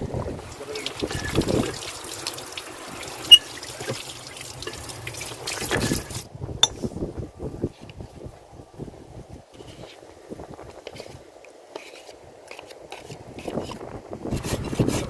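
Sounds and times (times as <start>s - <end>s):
liquid pouring: 0.5s - 6.2s.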